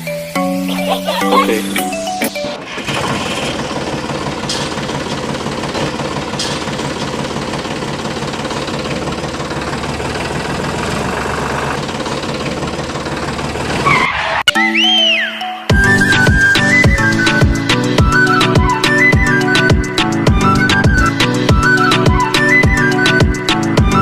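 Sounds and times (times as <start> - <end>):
small engine running: 2.6 - 14.0.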